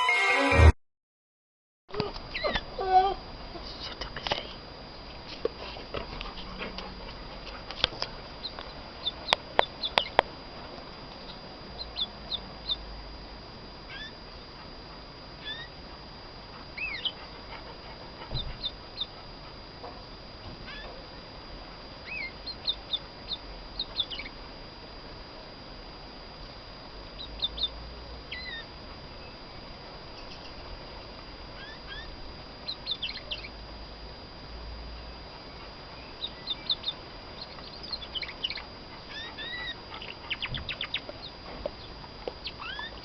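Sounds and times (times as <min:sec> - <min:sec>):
canary chirping: 0:02.3 - 0:02.6, 0:08.4 - 0:10.2, 0:11.2 - 0:12.8, 0:13.9 - 0:14.2, 0:15.4 - 0:15.8, 0:16.8 - 0:17.2, 0:18.4 - 0:19.2, 0:20.7 - 0:20.9, 0:22.0 - 0:24.4, 0:27.2 - 0:29.4, 0:30.2 - 0:30.6, 0:31.6 - 0:33.6, 0:35.5 - 0:43.0.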